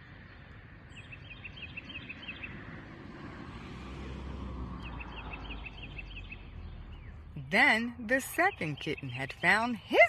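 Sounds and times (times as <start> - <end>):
bird chirping: 0.0 - 2.6, 4.8 - 10.0.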